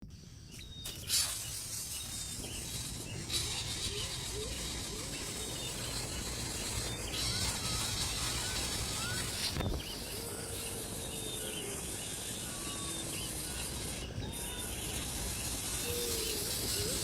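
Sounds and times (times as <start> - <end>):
steady hiss: 0.0 - 17.0
faint bird chirps: 0.1 - 17.0.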